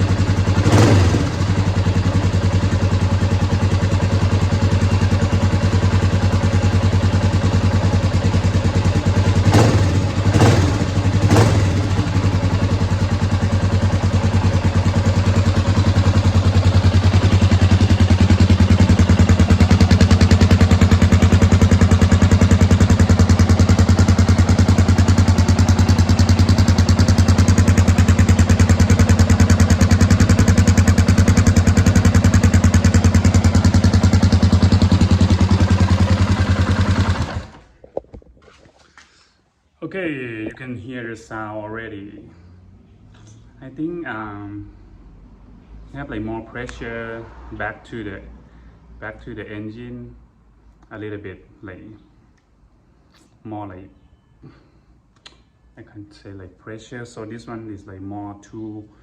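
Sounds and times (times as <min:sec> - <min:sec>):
motorcycle engine idling: 0:00.0 - 0:37.7.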